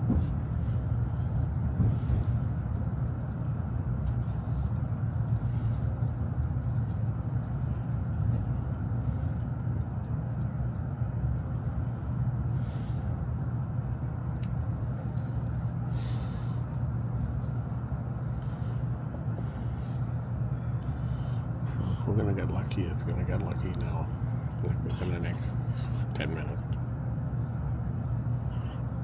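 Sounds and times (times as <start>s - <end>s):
train cabin low rumble: 0.0s - 29.0s.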